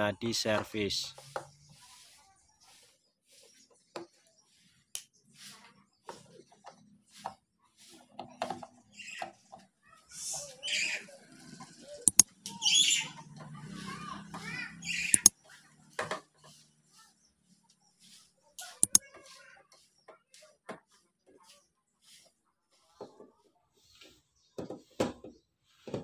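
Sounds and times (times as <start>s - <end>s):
birds chirping and squawking: 1.0s - 7.2s, 7.8s - 20.0s
screwdriver clicks: 15.1s - 15.3s, 18.8s - 19.0s.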